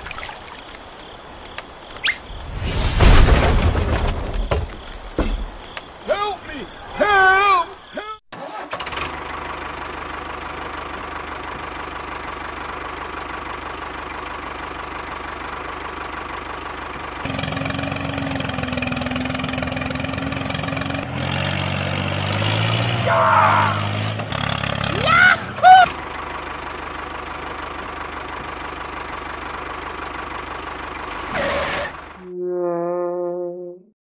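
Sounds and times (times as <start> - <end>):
squeaky chirp: 2.0 - 2.4
tractor engine running: 8.4 - 32.2.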